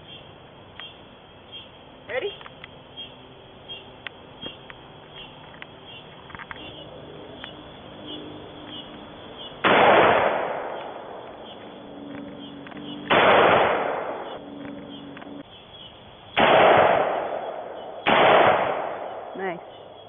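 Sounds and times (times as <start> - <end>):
rifle shots: 9.6 - 14.9, 16.4 - 19.4.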